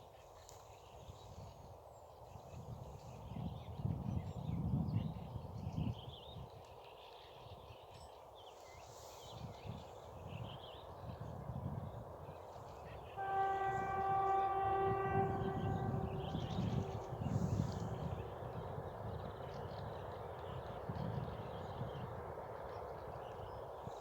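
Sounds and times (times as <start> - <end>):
locomotive horn blast: 13.2 - 18.4.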